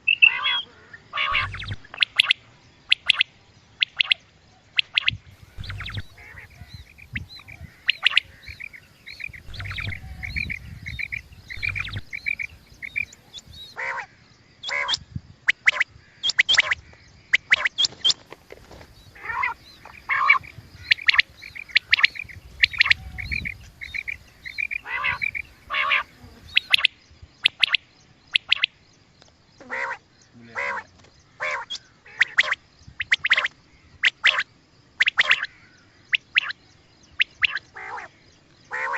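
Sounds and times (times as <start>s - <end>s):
quail calls: 0.1s - 3.2s, 4.8s - 15.0s, 17.4s - 26.9s, 29.6s - 34.4s, 35.0s - 35.6s, 37.4s - 38.1s.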